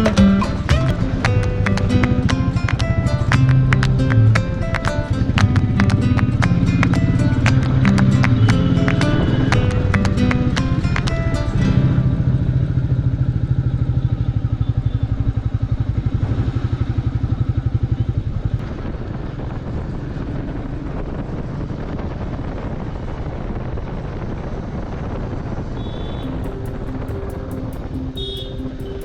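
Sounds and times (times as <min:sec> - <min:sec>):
motorcycle engine running: 0:00.0 - 0:29.0
rushing noise: 0:26.2 - 0:29.0.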